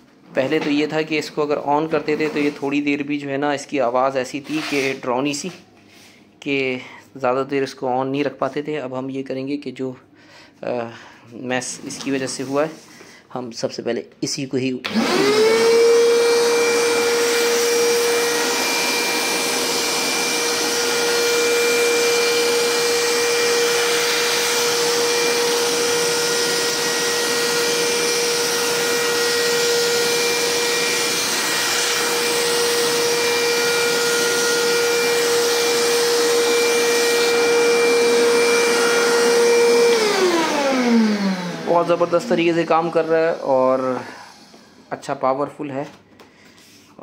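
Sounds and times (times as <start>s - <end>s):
vacuum cleaner motor running: 14.8s - 45.2s.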